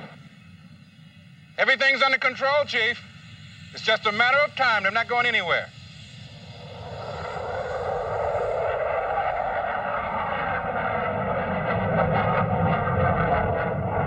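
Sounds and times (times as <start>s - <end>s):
airliner engines running up: 0.0s - 14.0s.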